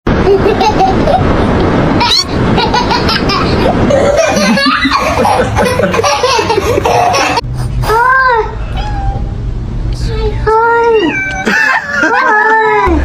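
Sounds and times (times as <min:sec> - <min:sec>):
people laughing: 0:02.9 - 0:07.4, 0:11.4 - 0:13.0
cat meowing: 0:10.9 - 0:11.5.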